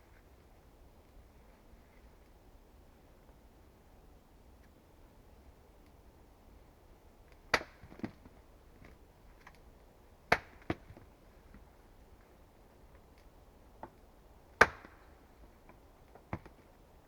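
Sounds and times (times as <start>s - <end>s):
axe chopping wood: 7.5s - 8.2s, 10.3s - 10.9s, 14.6s - 15.0s.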